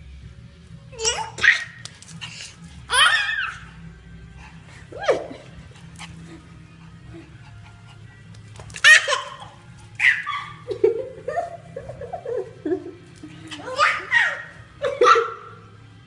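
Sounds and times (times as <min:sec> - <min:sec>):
baby squealing: 0:02.9 - 0:03.7, 0:08.8 - 0:10.6, 0:13.6 - 0:14.5
dog calling: 0:08.8 - 0:10.7.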